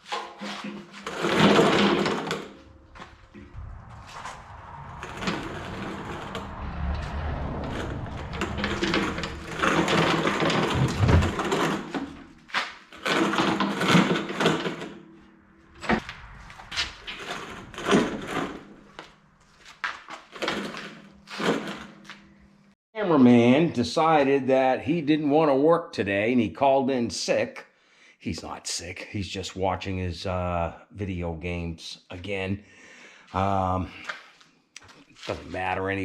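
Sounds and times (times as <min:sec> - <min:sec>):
box blade scraping and rattling: 0:00.0 - 0:02.6, 0:09.0 - 0:15.0.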